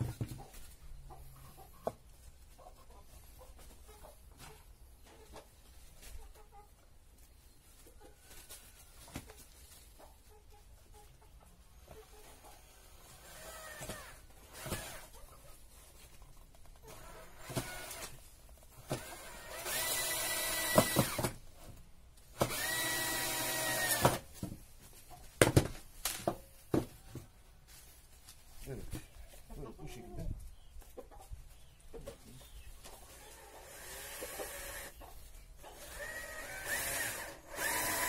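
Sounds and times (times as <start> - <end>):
cordless drill whining: 16.9 - 18.0, 19.0 - 21.3, 22.4 - 24.2, 33.6 - 34.9, 35.8 - 38.0.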